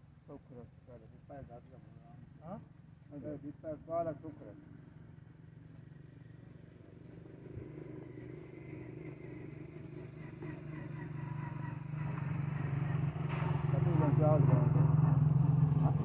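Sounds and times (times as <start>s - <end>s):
stationary diesel engine pulsing: 12.6s - 16.0s.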